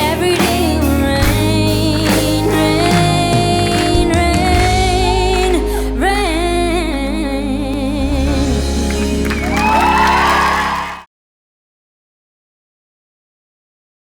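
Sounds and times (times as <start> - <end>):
woman singing: 0.0 - 9.6
pop band accompaniment: 0.0 - 11.0.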